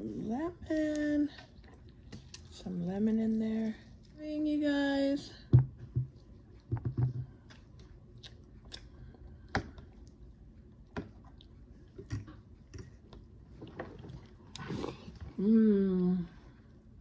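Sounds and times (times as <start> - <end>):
person chewing soft food: 1.4 - 2.6, 6.1 - 15.4.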